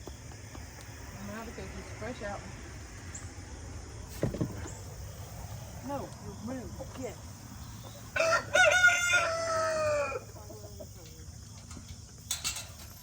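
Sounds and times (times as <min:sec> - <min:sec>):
rooster crowing: 0:08.0 - 0:10.4.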